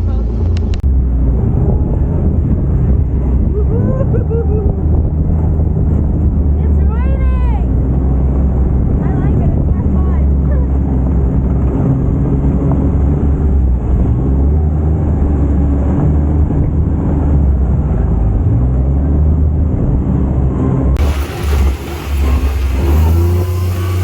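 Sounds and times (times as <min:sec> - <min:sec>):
utility vehicle engine droning: 0:21.0 - 0:24.0.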